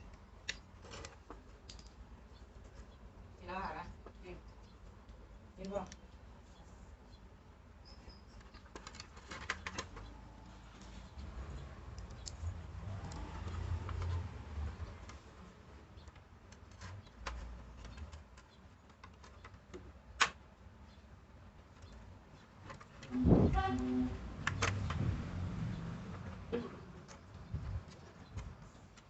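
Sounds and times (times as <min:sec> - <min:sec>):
small objects clicking and tapping: 0:00.1 - 0:02.0.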